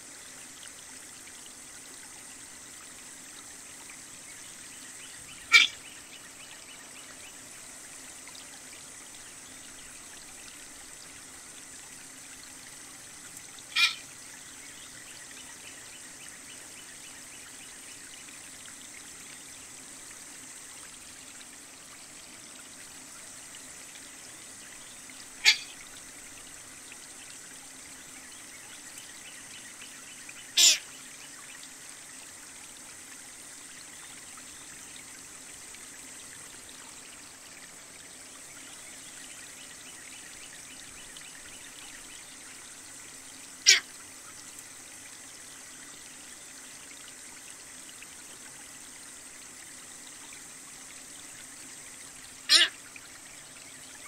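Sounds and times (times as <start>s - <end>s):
trickling water: 0.0s - 54.0s
sharp bird calls: 5.4s - 5.8s, 13.8s - 14.0s, 30.6s - 30.8s, 52.5s - 52.7s.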